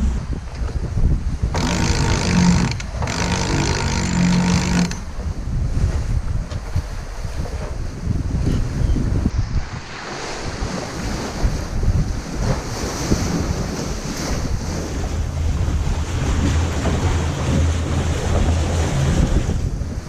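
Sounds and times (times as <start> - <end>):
sea waves rushing: 0.0 - 5.5, 9.2 - 20.0
wind buffeting microphone: 0.0 - 20.0.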